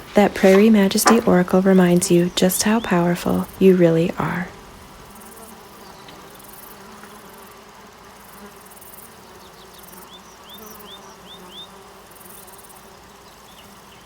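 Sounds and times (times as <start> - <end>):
bird chirping: 0.0 - 4.6, 9.3 - 11.8
insects buzzing and trilling: 0.0 - 14.0.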